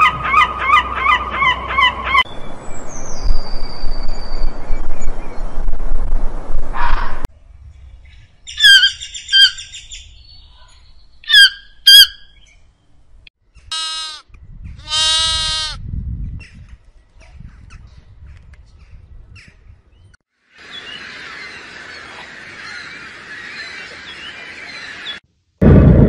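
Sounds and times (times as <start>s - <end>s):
bird calling and squawking: 8.5s - 12.5s
lambs bleating: 13.7s - 14.2s, 14.8s - 15.8s.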